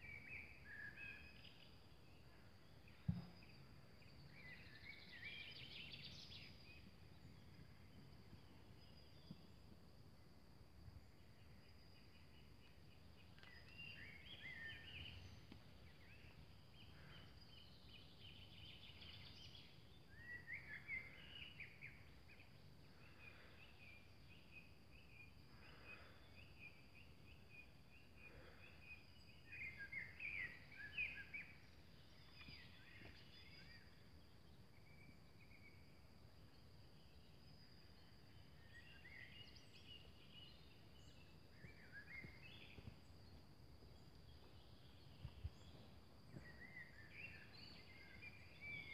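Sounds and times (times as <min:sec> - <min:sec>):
faint birdsong: 0:00.0 - 0:48.9.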